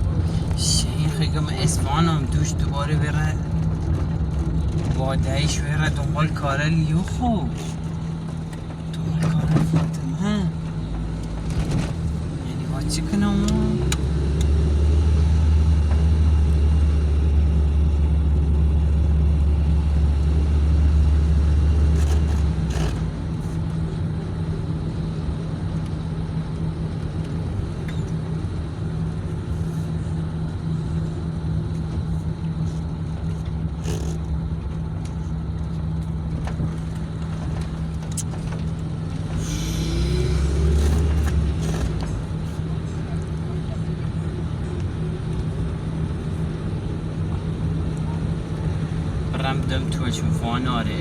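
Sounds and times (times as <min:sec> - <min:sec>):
car engine and road rumble: 0:00.0 - 0:51.0
rising engine note: 0:39.3 - 0:41.6.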